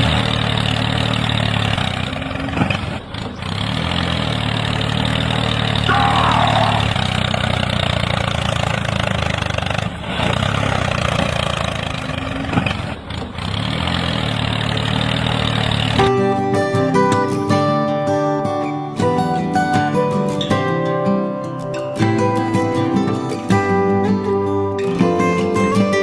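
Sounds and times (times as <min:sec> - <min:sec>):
engine running steadily: 0:00.0 - 0:17.8.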